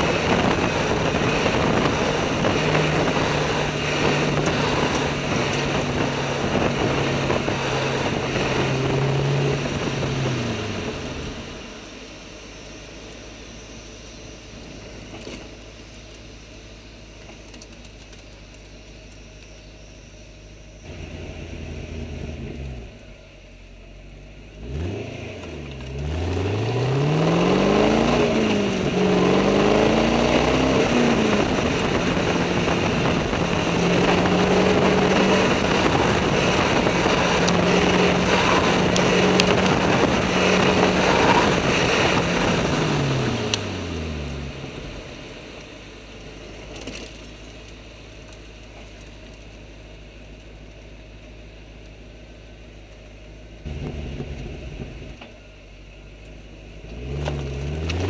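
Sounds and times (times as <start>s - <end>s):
car engine revving: 0.0s - 12.8s, 20.8s - 47.2s, 53.5s - 55.2s, 56.6s - 58.0s
road and wind noise: 0.0s - 58.0s.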